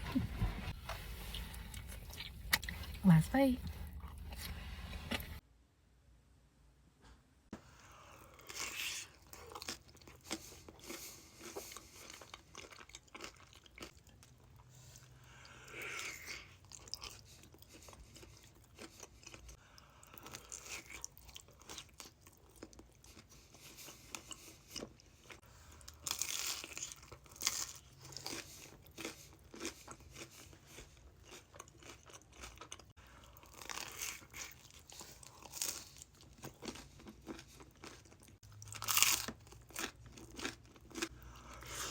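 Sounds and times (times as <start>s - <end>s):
crisp crunching bites: 33.5s - 41.1s.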